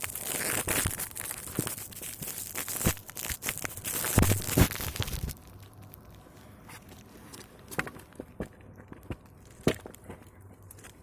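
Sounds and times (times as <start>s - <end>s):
snow and ice crunching: 0.0s - 6.1s.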